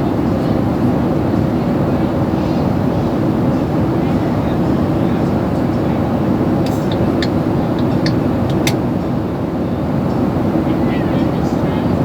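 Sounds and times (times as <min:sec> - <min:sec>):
short clicks: 0:06.7 - 0:08.8.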